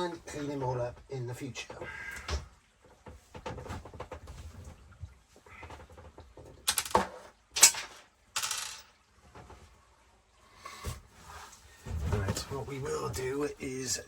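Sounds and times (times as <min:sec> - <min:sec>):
metal tools clinking and clattering: 0:06.7 - 0:08.9.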